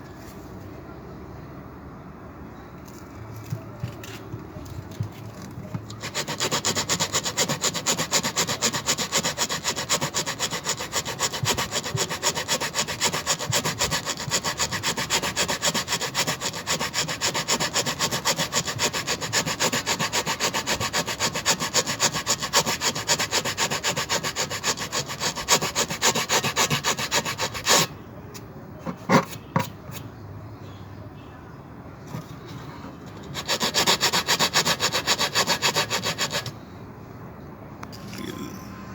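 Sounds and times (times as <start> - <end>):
hand rasp on tyre rubber: 5.8 - 27.9, 33.2 - 36.6.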